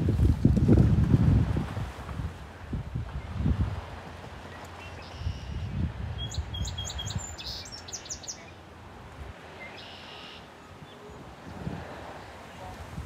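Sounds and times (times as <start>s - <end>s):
wind rumble on microphone: 0.0s - 7.9s, 10.7s - 13.0s
birds chirping: 4.4s - 8.7s, 9.5s - 11.6s.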